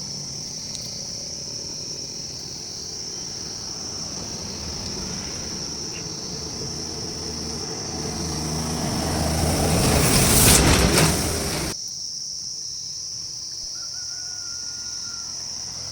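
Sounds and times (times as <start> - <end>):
vehicle engine: 0.0 - 11.8
insects chirping: 0.0 - 15.9.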